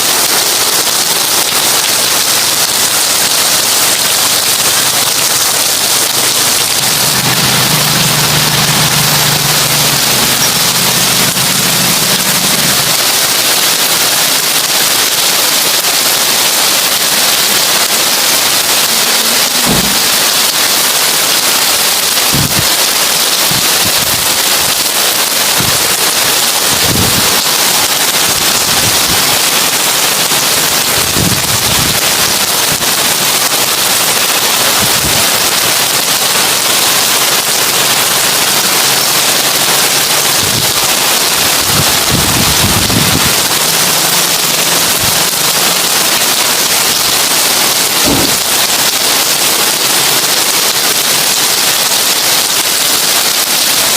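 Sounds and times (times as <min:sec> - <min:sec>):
heavy rain on a tin roof: 0:00.0 - 0:53.9
low thuds: 0:19.6 - 0:20.3, 0:48.0 - 0:48.6.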